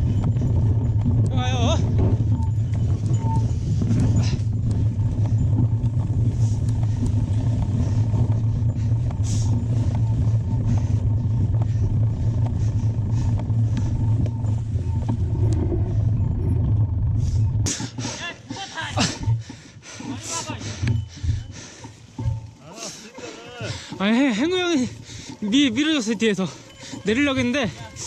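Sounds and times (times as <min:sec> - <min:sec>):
bike clicks and rattles: 0:00.0 - 0:28.0
mountain bike rumbling on trail: 0:00.0 - 0:28.0.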